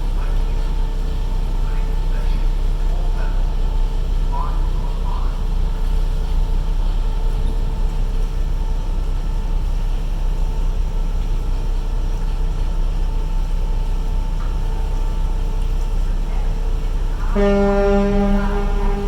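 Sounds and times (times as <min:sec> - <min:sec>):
faint steady hum: 0:00.0 - 0:19.0
ferry engines rumbling: 0:00.0 - 0:19.0
ferry horn: 0:17.2 - 0:19.0.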